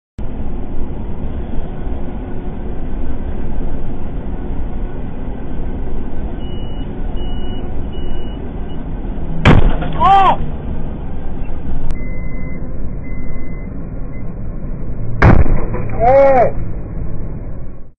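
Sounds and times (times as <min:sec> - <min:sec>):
truck cab rumble: 0:00.2 - 0:17.9
loud bang: 0:09.4 - 0:10.4, 0:15.2 - 0:16.6.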